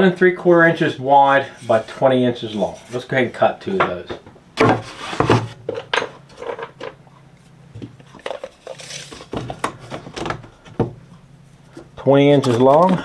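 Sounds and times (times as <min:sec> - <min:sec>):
faint steady hum: 0:00.0 - 0:13.0
wooden boards and tools clattering: 0:03.7 - 0:07.0.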